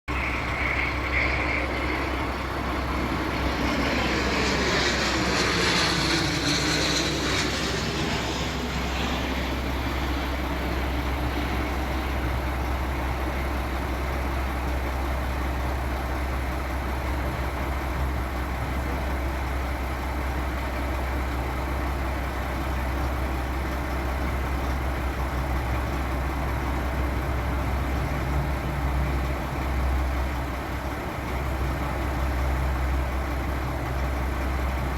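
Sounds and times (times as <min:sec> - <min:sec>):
low rumble: 0:00.1 - 0:13.8
jet passing by whine and hiss: 0:00.1 - 0:14.2.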